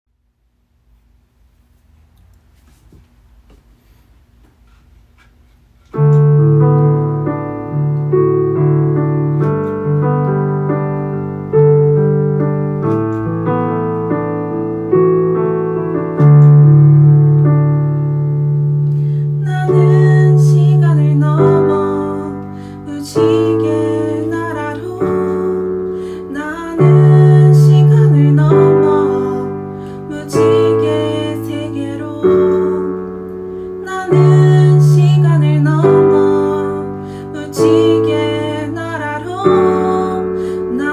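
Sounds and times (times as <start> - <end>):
piano chords: 5.9 - 40.9
person singing: 19.4 - 40.9.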